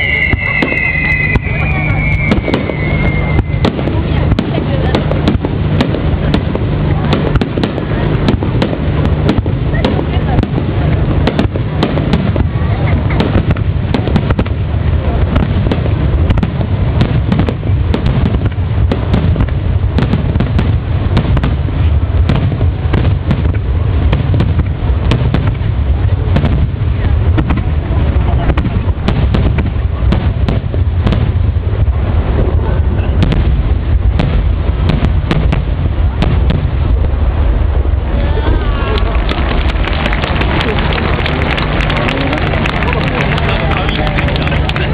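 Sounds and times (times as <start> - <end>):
deep rumble of shell bursts: 0.0 - 44.9
firework cracks and pops: 0.0 - 44.9.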